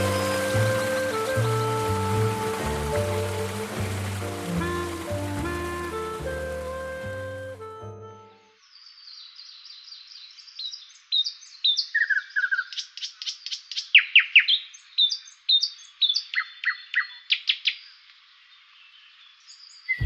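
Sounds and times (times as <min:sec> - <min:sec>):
songbirds chirping and singing: 0:08.6 - 0:18.0.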